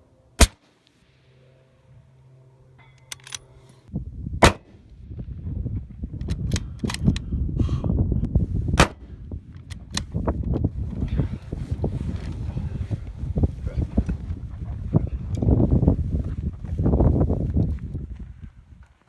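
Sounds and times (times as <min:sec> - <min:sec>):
rifle shots: 0:00.4 - 0:00.6, 0:04.4 - 0:04.8, 0:08.8 - 0:09.1
low rumble: 0:03.9 - 0:18.6.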